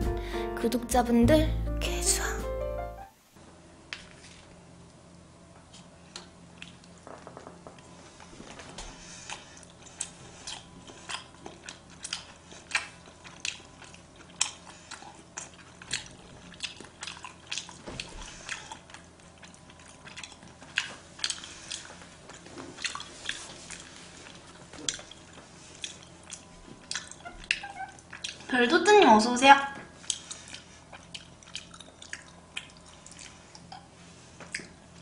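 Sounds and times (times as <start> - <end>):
person chewing food: 5.7 - 28.5, 29.9 - 35.0.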